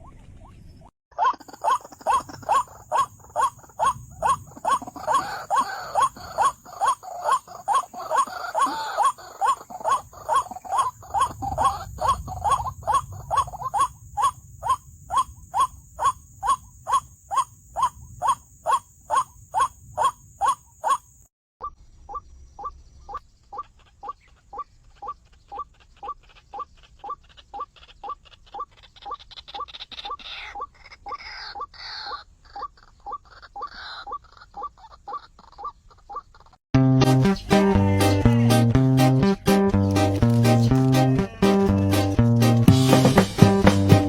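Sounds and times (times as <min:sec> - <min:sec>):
waterhen wak-wak call: 0:01.1 - 0:36.6
rougher bird call: 0:01.2 - 0:25.7.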